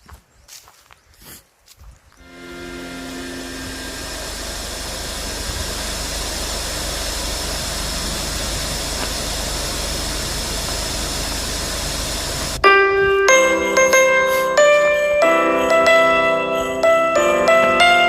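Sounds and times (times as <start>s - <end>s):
steady engine-like hum: 2.2s - 12.6s.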